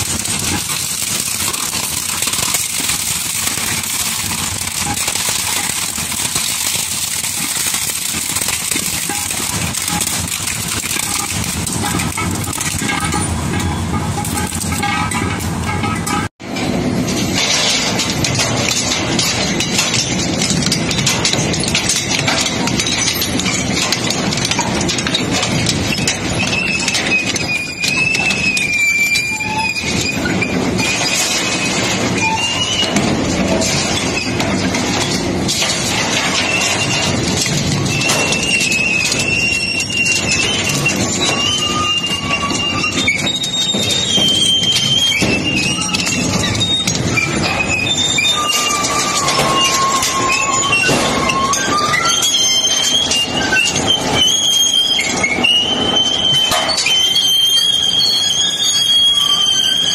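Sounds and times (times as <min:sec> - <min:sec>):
industrial shredder grinding: 0:00.0 - 0:16.2
machine rumble: 0:00.0 - 0:28.5
scrap clattering and cracking: 0:00.0 - 0:59.9
high metallic squeal: 0:25.9 - 0:59.9.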